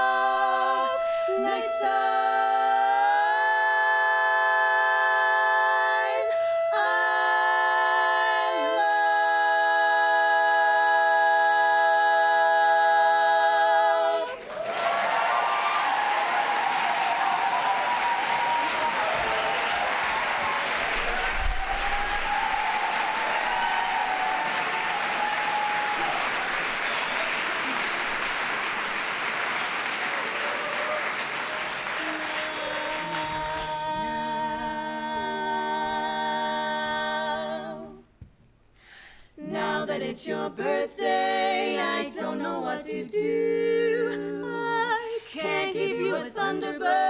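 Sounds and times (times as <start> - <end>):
audience applauding and cheering: 14.3 - 33.8.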